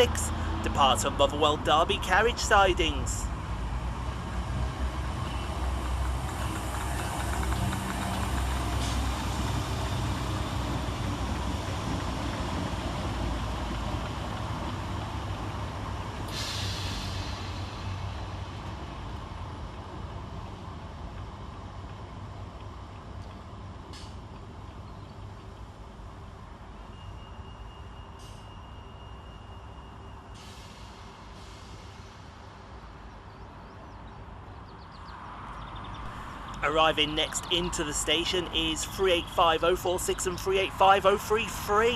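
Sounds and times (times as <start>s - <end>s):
train rumbling on rails: 0.0s - 41.9s
short hiss: 16.3s - 17.8s.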